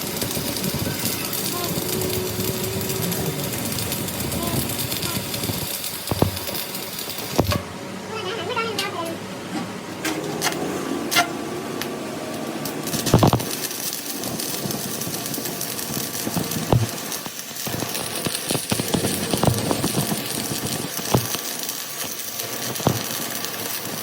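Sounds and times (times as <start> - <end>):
steady hiss: 0.0 - 7.5.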